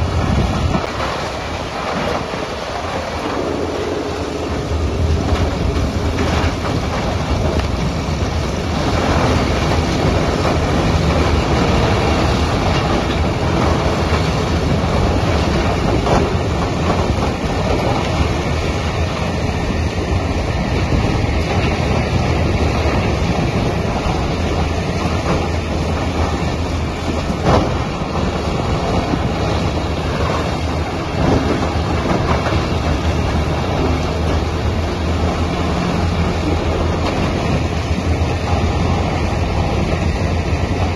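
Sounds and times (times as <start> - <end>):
tub grinder running: 0.0 - 19.6.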